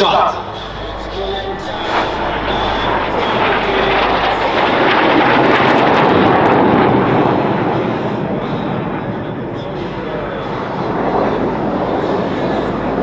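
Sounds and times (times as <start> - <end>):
jet aircraft roar: 0.0 - 13.0.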